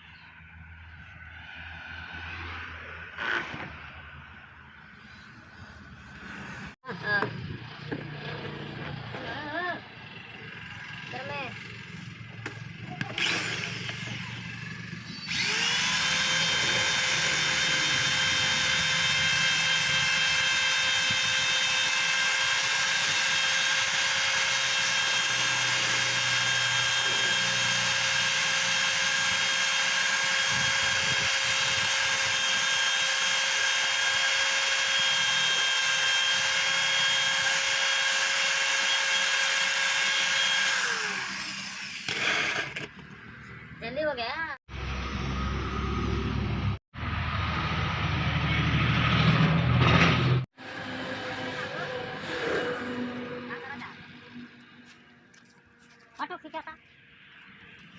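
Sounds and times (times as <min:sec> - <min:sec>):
high-speed power tool spinning: 0:07.6 - 0:43.4.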